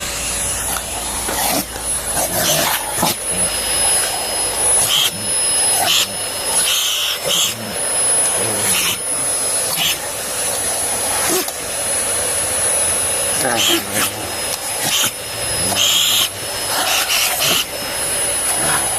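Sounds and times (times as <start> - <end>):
vacuum cleaner running: 0.0 - 18.9
dog making sharp sounds: 0.6 - 10.1, 13.4 - 18.9.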